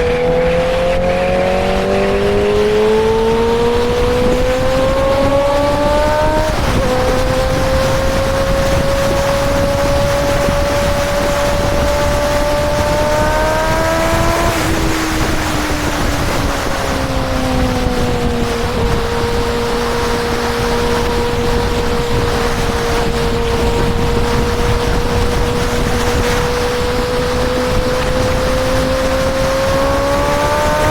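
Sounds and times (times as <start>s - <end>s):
motorcycle engine running: 0.0s - 30.9s
wind noise: 0.0s - 30.9s.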